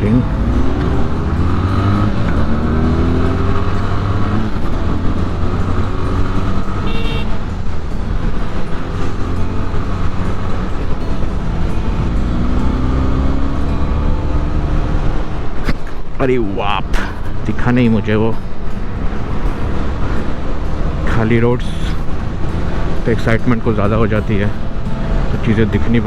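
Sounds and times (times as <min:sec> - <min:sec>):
motorcycle engine running: 0:00.0 - 0:26.0
short horn toot: 0:06.8 - 0:07.4.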